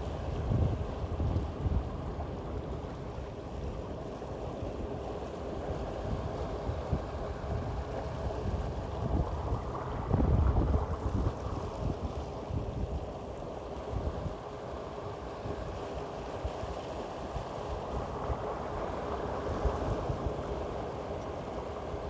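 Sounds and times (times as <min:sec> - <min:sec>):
rushing water: 0:00.0 - 0:22.0
wind buffeting microphone: 0:06.1 - 0:13.2.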